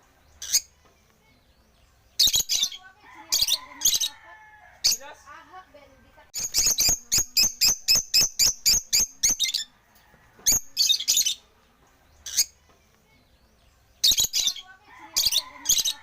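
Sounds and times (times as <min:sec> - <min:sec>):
birds chirping high notes: 0:00.0 - 0:04.2, 0:06.4 - 0:09.7.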